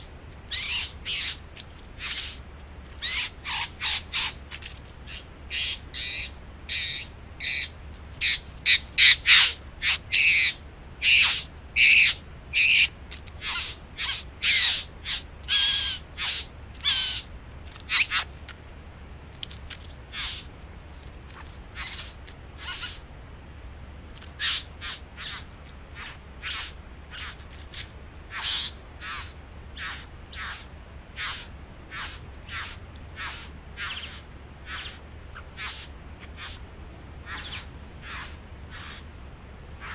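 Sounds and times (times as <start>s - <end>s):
bird calling short calls: 0.0s - 1.4s, 5.1s - 17.3s, 20.1s - 20.5s, 21.8s - 23.0s, 24.2s - 36.6s, 37.2s - 39.1s.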